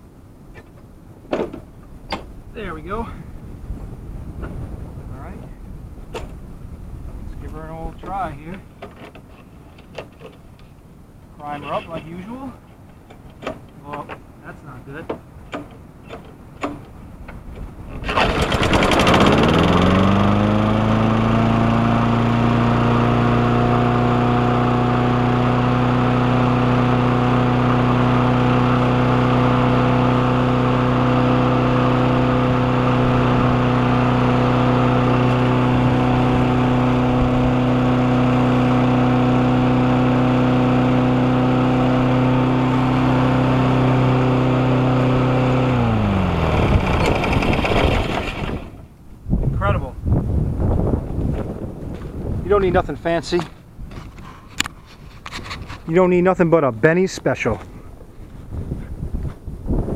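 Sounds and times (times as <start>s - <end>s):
lawn mower engine running: 16.2s - 49.0s.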